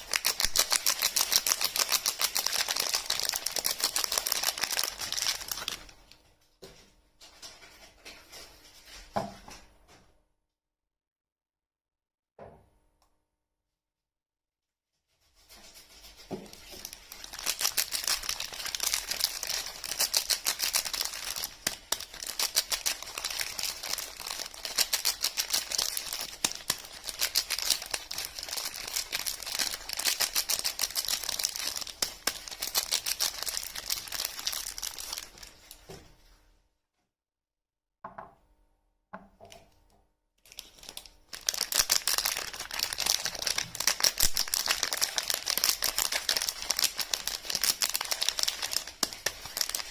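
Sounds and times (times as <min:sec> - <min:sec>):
wrappers crinkling and tearing: 0:00.0 - 0:06.2, 0:15.4 - 0:35.9, 0:40.4 - 0:49.9.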